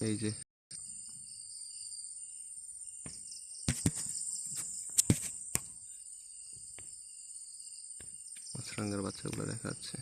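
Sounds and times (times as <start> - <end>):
insects trilling: 0.0 - 10.0
sharp knocks and rustles: 3.0 - 5.9.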